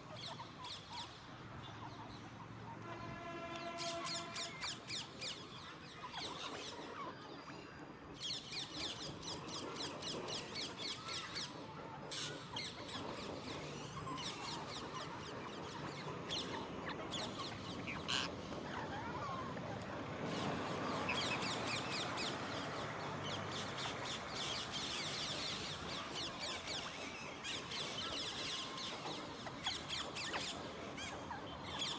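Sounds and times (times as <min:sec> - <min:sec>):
parakeets chattering: 0:12.1 - 0:19.6.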